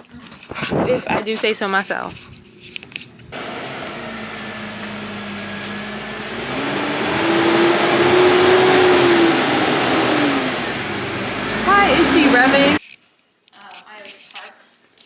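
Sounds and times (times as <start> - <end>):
car engine idling and revving: 2.8 - 12.8.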